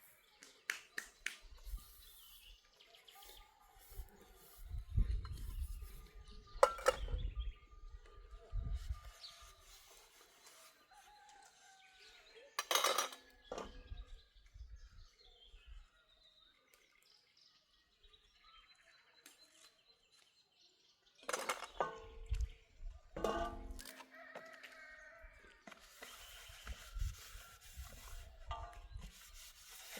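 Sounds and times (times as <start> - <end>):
birds calling and chirping: 0.0 - 10.7.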